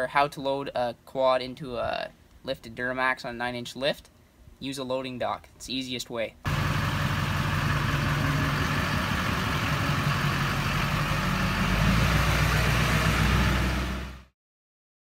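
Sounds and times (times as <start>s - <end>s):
vehicle engine running: 6.5s - 14.3s.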